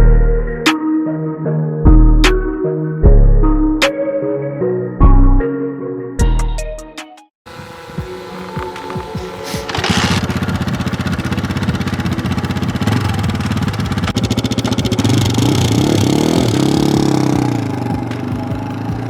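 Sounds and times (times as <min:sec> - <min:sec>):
motorcycle engine running and revving: 0:07.5 - 0:19.0.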